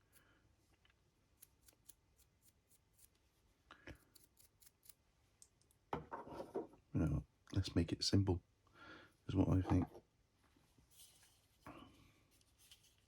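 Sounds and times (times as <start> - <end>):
scrape: 10.8 - 13.0.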